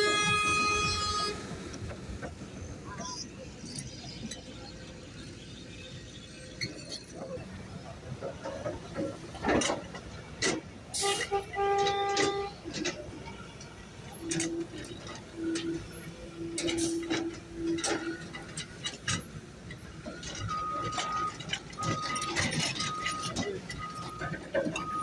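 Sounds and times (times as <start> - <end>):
vehicle horn: 0.0 - 1.5, 11.0 - 12.6
lower horn tooting: 0.0 - 1.7
road traffic: 0.0 - 25.0.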